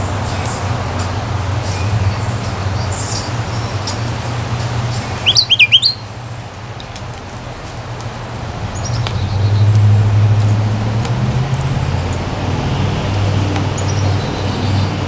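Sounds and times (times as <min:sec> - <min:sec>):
low traffic rumble: 0:00.0 - 0:15.0
songbird chirping: 0:00.3 - 0:07.0, 0:08.6 - 0:10.3, 0:13.0 - 0:15.0.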